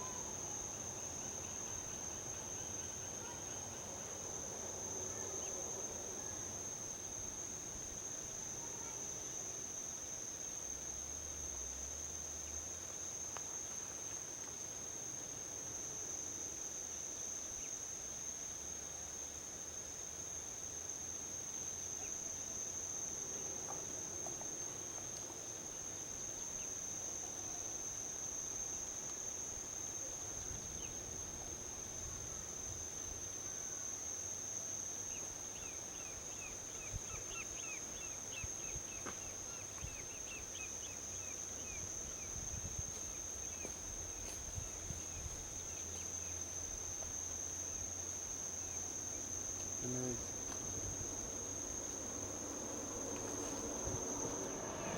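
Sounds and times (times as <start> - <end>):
crickets chirping: 0.0 - 54.9
distant highway traffic: 50.2 - 54.9.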